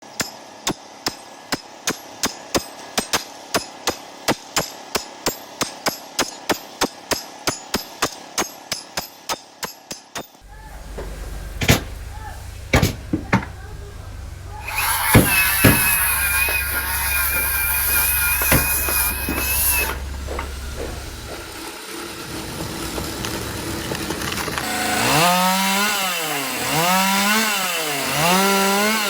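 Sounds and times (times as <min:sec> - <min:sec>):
hammer strikes: 0:10.4 - 0:21.7
loud knocks: 0:10.4 - 0:21.7
low rumble: 0:10.4 - 0:21.7.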